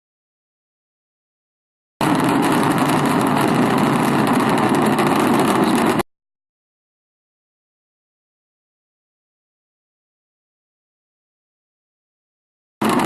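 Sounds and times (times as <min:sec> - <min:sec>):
jet engine roaring: 0:02.0 - 0:06.0.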